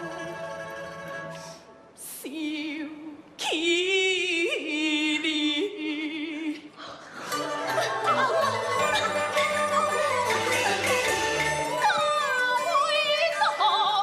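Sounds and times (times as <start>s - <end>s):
traditional instruments playing: 0.0s - 1.7s, 7.2s - 13.4s
opera singing with vibrato: 0.0s - 14.0s.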